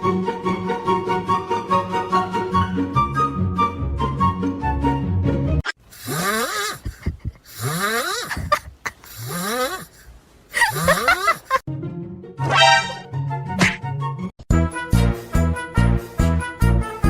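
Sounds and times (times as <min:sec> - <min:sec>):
background music: 0:00.0 - 0:05.6, 0:11.7 - 0:17.0.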